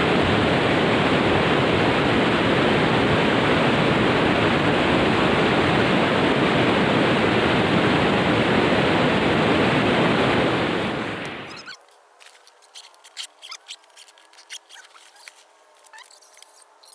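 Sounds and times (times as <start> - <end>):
water rushing: 0.0 - 11.7.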